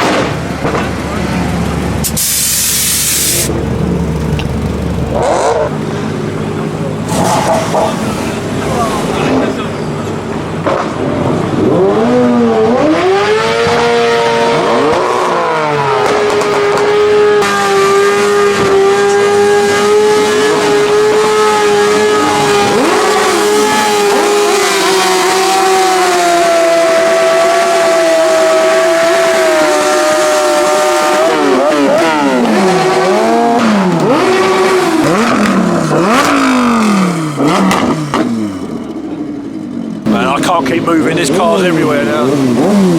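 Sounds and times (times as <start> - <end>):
car engine at high revs: 0.0 - 42.9
engines revving up and down: 0.0 - 42.9.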